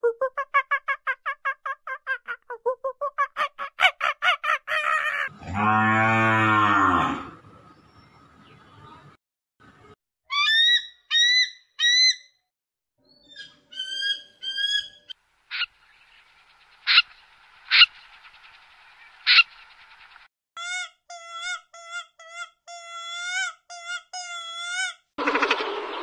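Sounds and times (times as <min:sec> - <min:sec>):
eagle high chirping calls: 0:13.1 - 0:16.2, 0:16.8 - 0:20.2
buzzy bird call: 0:13.2 - 0:20.3
short rising bird calls: 0:16.8 - 0:18.4, 0:19.0 - 0:20.2.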